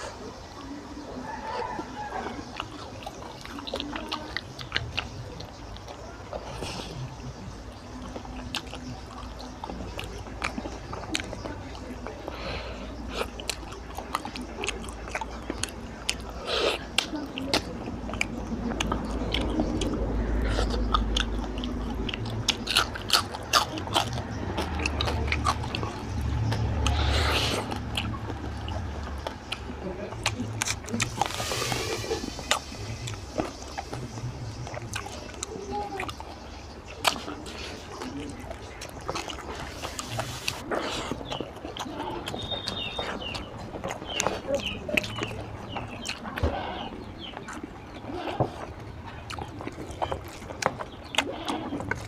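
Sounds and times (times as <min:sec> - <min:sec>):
chewing food: 0:00.0 - 0:52.0
breathy rush of noise: 0:31.2 - 0:32.9.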